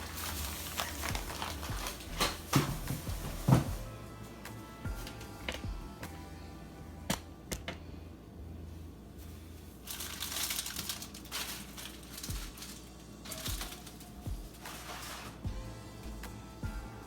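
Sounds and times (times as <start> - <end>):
rough rustling: 0.0 - 3.8, 9.2 - 15.4.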